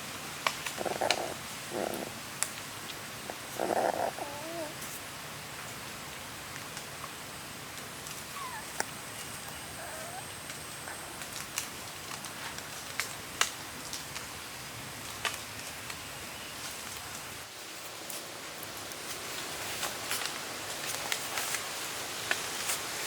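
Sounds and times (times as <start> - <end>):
steady background hiss: 0.0 - 23.0.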